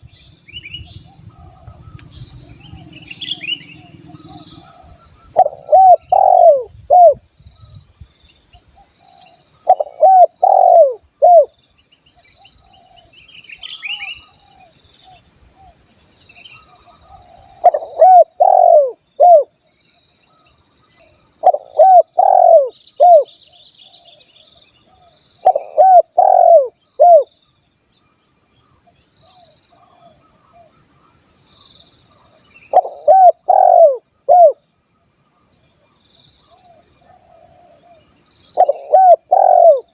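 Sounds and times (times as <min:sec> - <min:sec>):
faint high-pitched insect buzz: 0:00.0 - 0:39.9
dove cooing: 0:02.6 - 0:07.2, 0:09.0 - 0:11.5, 0:16.8 - 0:19.5, 0:21.4 - 0:24.2, 0:25.0 - 0:27.3, 0:32.7 - 0:34.6, 0:36.5 - 0:39.9.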